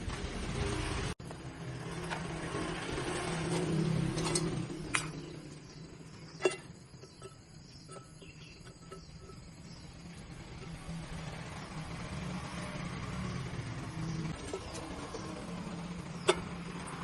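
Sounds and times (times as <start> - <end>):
sharp metallic clinks: 4.4 - 11.8.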